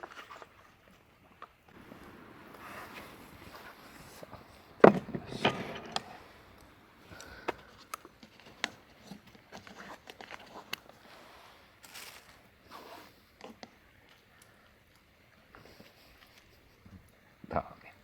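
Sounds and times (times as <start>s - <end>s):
loud thump: 2.1s - 6.4s
knock: 4.8s - 6.1s.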